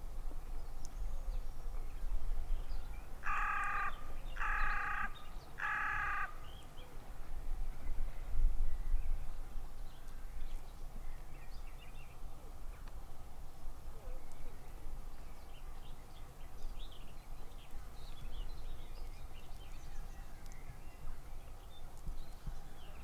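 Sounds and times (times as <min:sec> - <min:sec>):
bird calling: 0:03.2 - 0:06.6.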